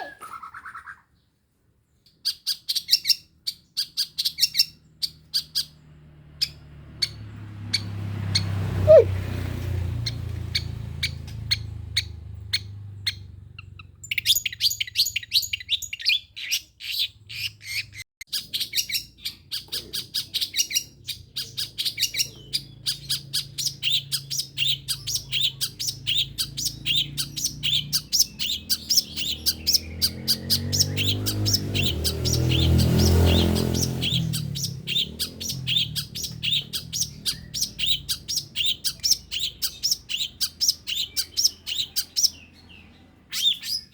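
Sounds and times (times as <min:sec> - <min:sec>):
bird chattering call: 0:08.9 - 0:09.1.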